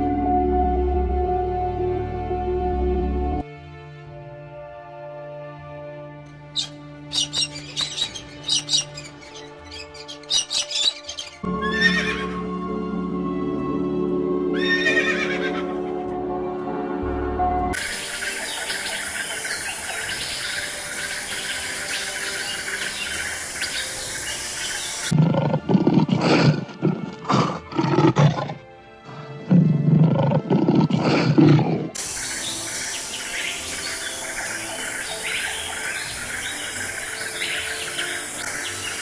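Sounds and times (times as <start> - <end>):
bird and insect chirps: 6.6 - 12.1, 17.8 - 25.2, 32.0 - 39.0.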